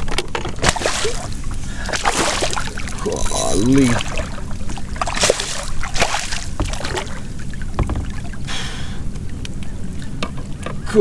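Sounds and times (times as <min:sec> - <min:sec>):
water splashing: 0:00.0 - 0:11.0
knocks against hull: 0:01.9 - 0:08.2.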